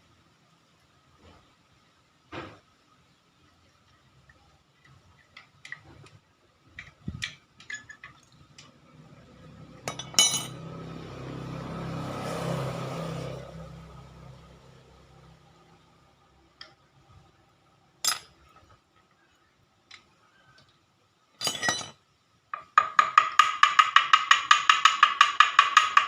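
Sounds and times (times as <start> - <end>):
metal tools clinking and tapping: 6.8 - 8.8, 9.9 - 10.6, 18.0 - 18.8, 21.4 - 22.0.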